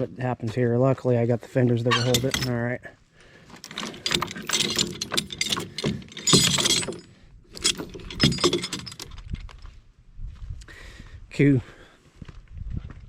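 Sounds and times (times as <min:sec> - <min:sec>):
chain jangling: 0:01.9 - 0:02.6, 0:03.6 - 0:09.4
chain clanking and rattling: 0:01.9 - 0:02.7, 0:03.5 - 0:09.6.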